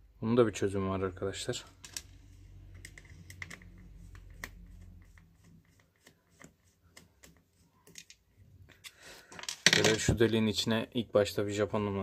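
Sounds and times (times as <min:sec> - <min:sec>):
small parts clicking and tapping: 0:01.8 - 0:04.6, 0:07.0 - 0:10.0.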